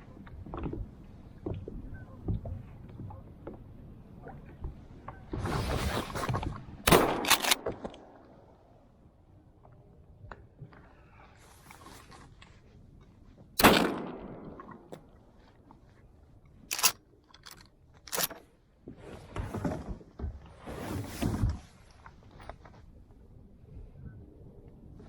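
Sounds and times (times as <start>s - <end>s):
shotgun blast: 6.9s - 7.7s, 13.6s - 14.6s
handling noises: 7.2s - 7.9s, 16.5s - 18.6s.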